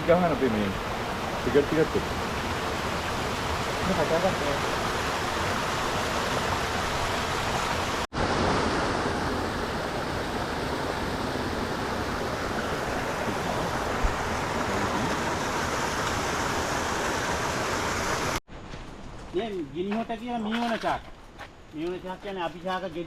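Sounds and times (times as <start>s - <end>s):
flowing water rushing: 0.0s - 18.4s.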